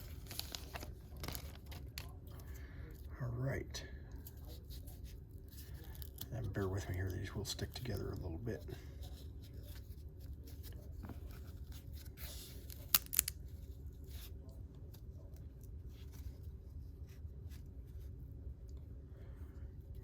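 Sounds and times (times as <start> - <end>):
trading cards rustling: 0.0 - 3.0, 4.2 - 15.1
steady low hum: 0.0 - 20.0.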